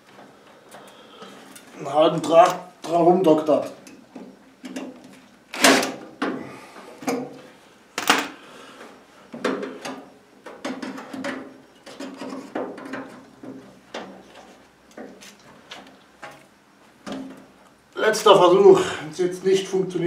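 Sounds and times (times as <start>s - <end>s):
metal tools clanking and scraping: 10.7s - 13.2s.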